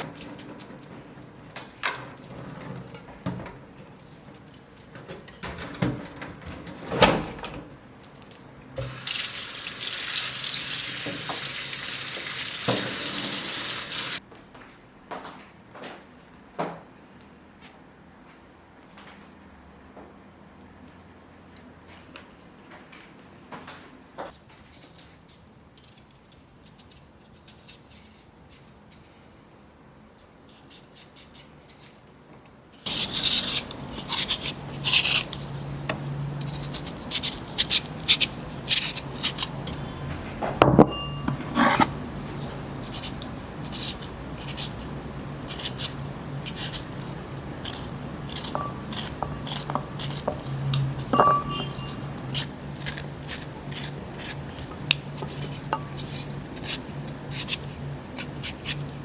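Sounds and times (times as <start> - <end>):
dishes and utensils clinking: 32.9 - 53.2.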